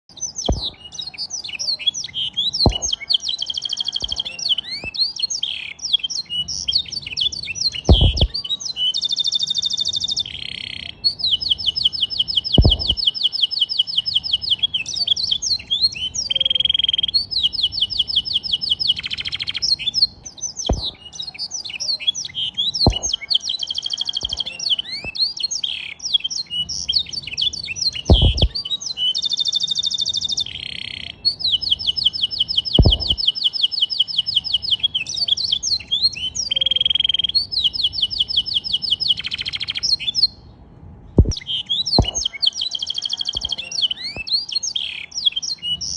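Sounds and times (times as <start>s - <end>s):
canary singing: 0.1s - 40.6s, 41.2s - 45.9s
short dull knocks: 0.5s - 0.8s, 2.6s - 2.9s, 7.9s - 8.3s, 12.6s - 13.0s, 20.7s - 21.0s, 22.8s - 23.1s, 28.1s - 28.6s, 32.8s - 33.2s, 41.2s - 41.4s, 42.0s - 42.2s.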